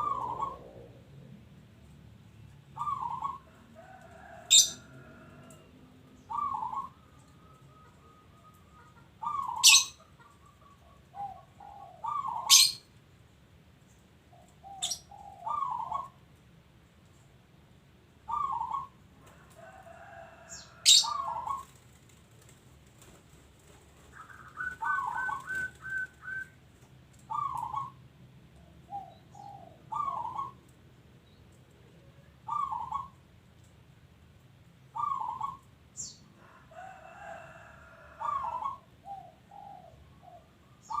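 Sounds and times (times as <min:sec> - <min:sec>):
dove cooing: 0:00.0 - 0:01.4, 0:02.7 - 0:12.9, 0:14.3 - 0:16.2, 0:18.3 - 0:22.0, 0:23.0 - 0:26.5, 0:27.1 - 0:28.0, 0:28.6 - 0:30.7, 0:31.8 - 0:33.2, 0:34.9 - 0:41.0.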